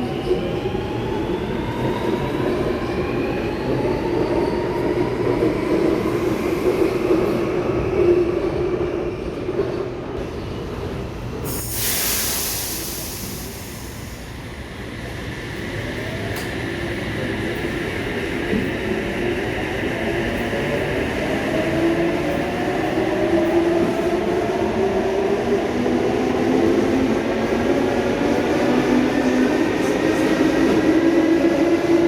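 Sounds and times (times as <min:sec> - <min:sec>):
air hiss burst: 0:11.5 - 0:14.4.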